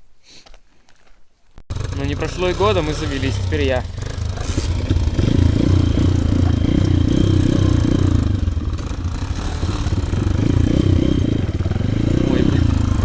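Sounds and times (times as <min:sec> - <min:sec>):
motorbike engine starting and revving: 0:01.7 - 0:13.0.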